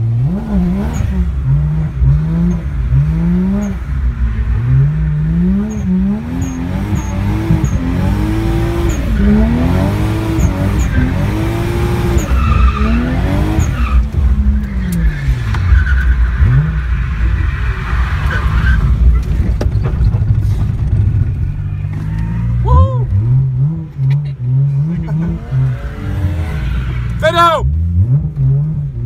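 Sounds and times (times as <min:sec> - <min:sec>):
car engine revving: 0:00.0 - 0:29.0
tyres screeching: 0:05.6 - 0:20.1, 0:21.5 - 0:23.4.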